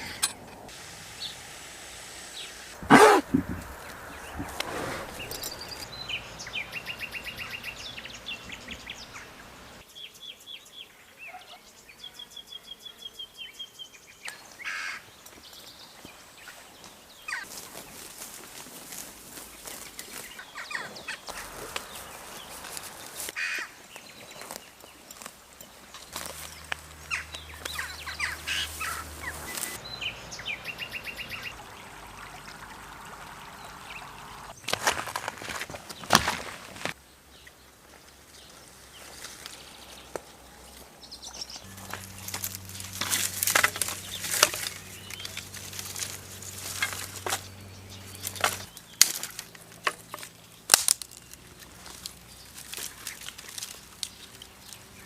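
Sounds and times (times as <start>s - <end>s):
background hiss: 0.0s - 34.7s
small birds chirping: 0.0s - 34.8s, 35.9s - 55.0s
sharp crackling knocks: 2.8s - 4.7s
bird trill: 5.1s - 9.4s, 26.4s - 31.6s.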